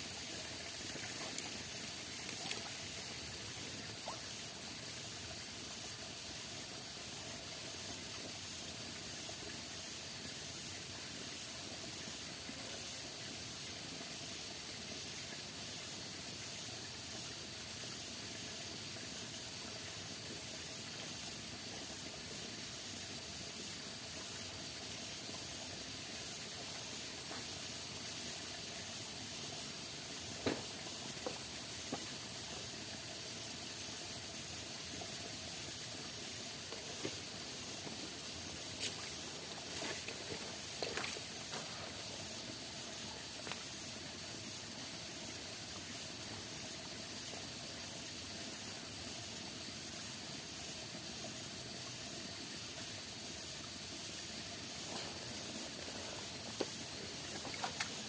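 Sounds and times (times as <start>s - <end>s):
steady rain in forest: 0.0s - 58.0s.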